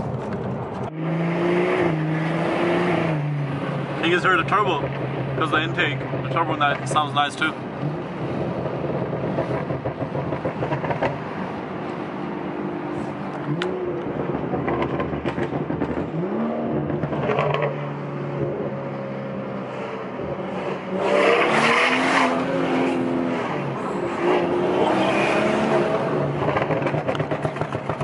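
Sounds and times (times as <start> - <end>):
intake and turbo rush: 0.0 - 28.0
car engine accelerating: 0.1 - 28.0.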